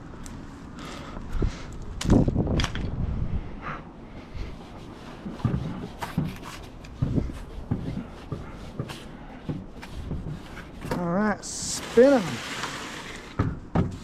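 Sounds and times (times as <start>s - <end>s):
rubbing: 4.4s - 13.4s
dull thuds: 5.2s - 11.0s.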